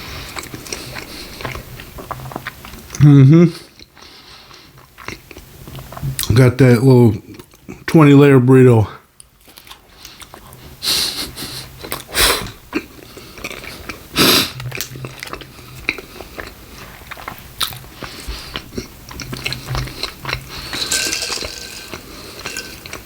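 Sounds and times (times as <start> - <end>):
biting and chewing food: 12.7 - 23.0.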